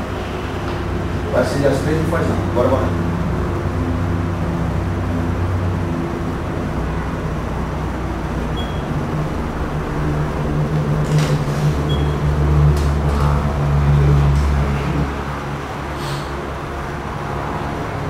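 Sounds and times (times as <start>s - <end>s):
low machine hum: 0.0s - 18.0s
short high beep: 8.6s - 8.9s, 11.9s - 12.2s.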